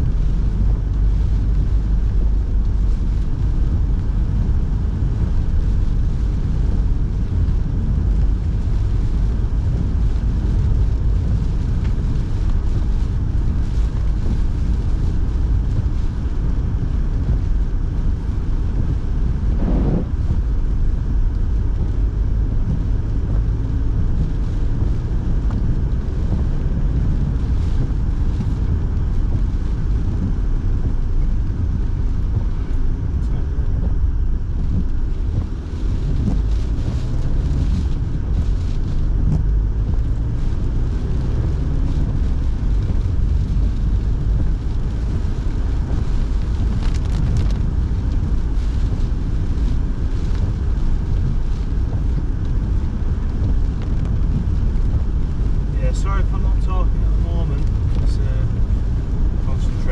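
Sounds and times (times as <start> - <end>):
car road and tyre noise: 0.0 - 59.9
heater fan blowing: 14.2 - 59.9.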